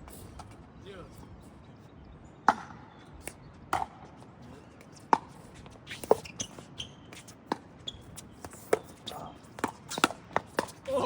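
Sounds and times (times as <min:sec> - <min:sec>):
shoe scuffs on court: 0:04.8 - 0:10.9.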